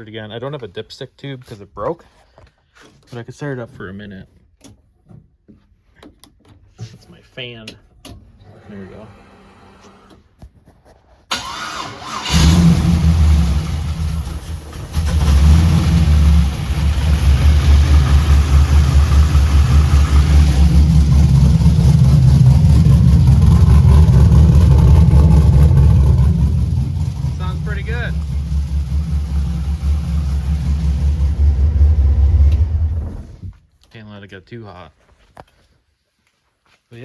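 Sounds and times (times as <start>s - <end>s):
engine starter cranking: 11.3s - 33.5s
car engine running: 12.2s - 33.5s.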